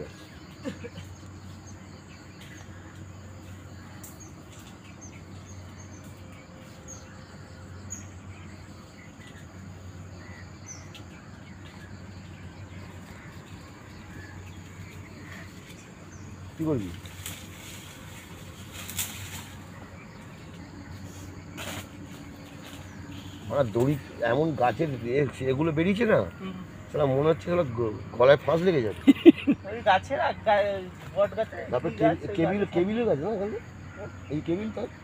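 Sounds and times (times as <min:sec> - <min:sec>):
outdoor background hiss: 0:00.0 - 0:35.0
steady low hum: 0:00.0 - 0:35.0.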